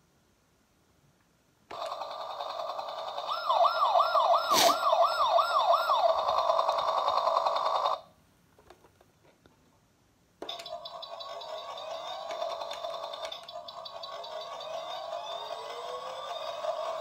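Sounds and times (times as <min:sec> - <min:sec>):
toy rotor noise: 0:01.7 - 0:08.1, 0:10.5 - 0:17.0
wailing toy siren: 0:01.7 - 0:08.1, 0:10.5 - 0:17.0.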